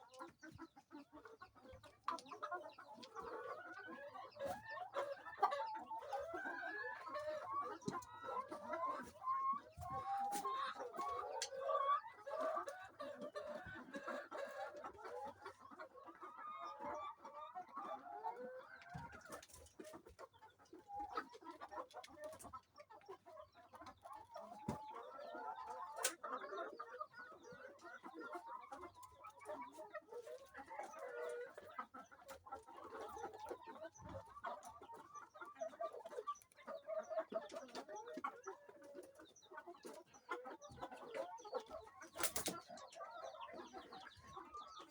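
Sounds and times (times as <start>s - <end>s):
hens clucking and murmuring: 0.0s - 44.9s.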